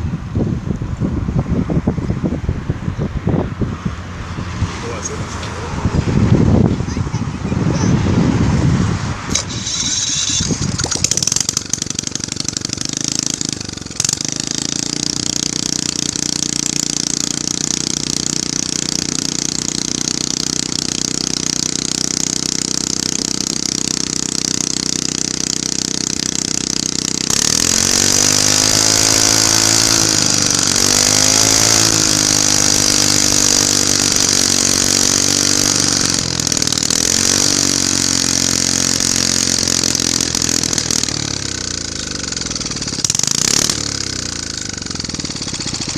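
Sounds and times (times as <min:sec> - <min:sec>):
small generator engine running: 0:09.2 - 0:45.9.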